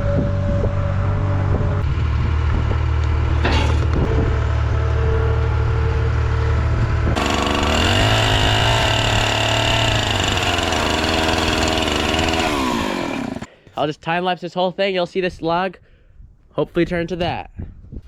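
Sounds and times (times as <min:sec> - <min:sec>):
saw blade whining through log: 0:07.2 - 0:13.5
sawmill engine running: 0:07.2 - 0:13.5.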